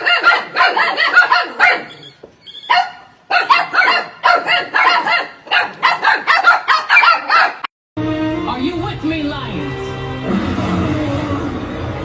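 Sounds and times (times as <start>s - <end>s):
dog barking rapidly: 0.0s - 2.0s, 2.6s - 7.7s.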